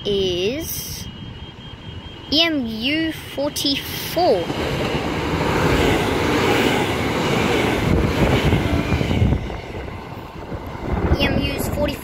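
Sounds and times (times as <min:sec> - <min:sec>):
train rushing past: 0:00.0 - 0:12.0
wind buffeting the microphone: 0:04.4 - 0:12.0.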